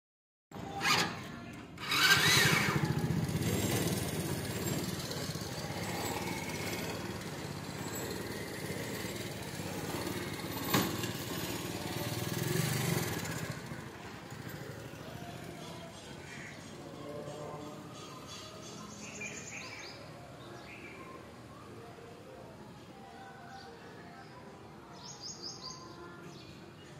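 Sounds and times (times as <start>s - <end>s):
small motorcycle engine idling: 0.6s - 20.0s.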